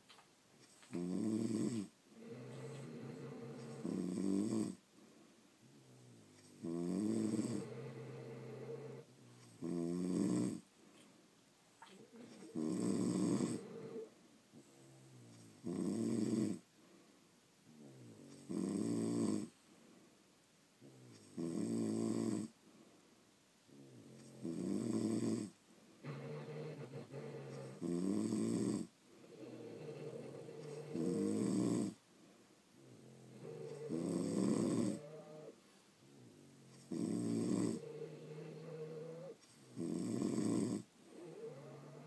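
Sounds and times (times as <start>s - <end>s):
dogs snoring: 0.6s - 4.8s, 5.6s - 10.7s, 11.8s - 16.7s, 17.6s - 19.6s, 20.8s - 22.6s, 23.7s - 32.0s, 32.7s - 42.0s
dog breathing: 26.0s - 28.0s, 29.1s - 39.4s.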